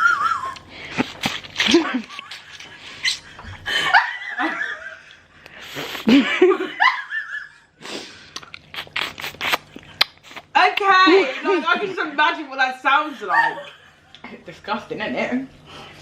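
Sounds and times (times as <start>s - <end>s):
women laughing: 0.0s - 7.7s, 11.0s - 14.4s.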